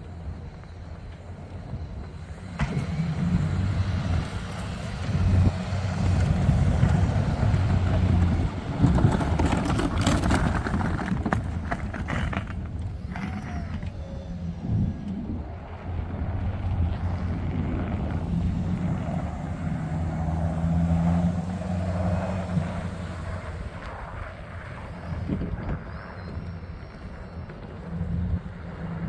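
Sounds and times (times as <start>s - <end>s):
vehicle engine humming: 0.0s - 29.0s
scraping and rattling: 7.9s - 14.0s.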